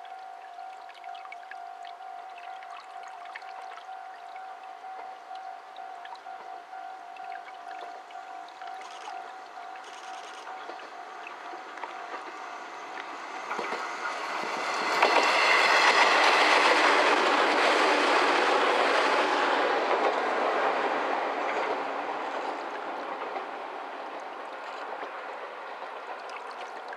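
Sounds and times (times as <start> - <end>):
electric train passing: 0.0 - 26.9
wheels clattering on rails: 9.8 - 26.9.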